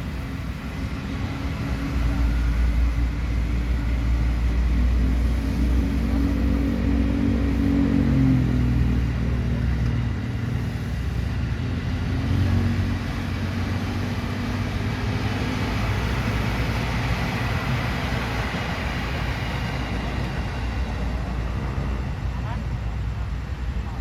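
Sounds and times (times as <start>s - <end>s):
electric train passing: 0.0s - 24.0s.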